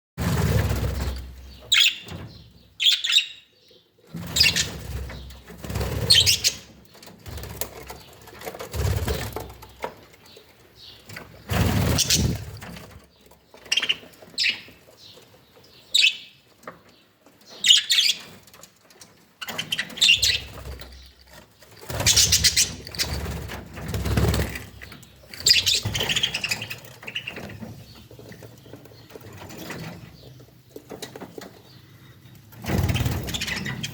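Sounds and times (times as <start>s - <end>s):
birds fluttering wings: 0.2s - 1.7s, 4.1s - 10.0s, 11.1s - 14.3s, 19.5s - 31.5s, 32.5s - 33.9s
birds chirping: 0.4s - 33.9s.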